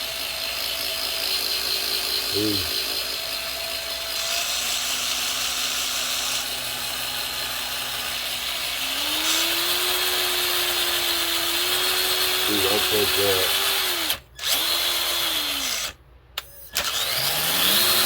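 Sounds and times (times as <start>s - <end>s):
toy car motor gear whine: 0.0s - 3.5s, 8.9s - 18.0s.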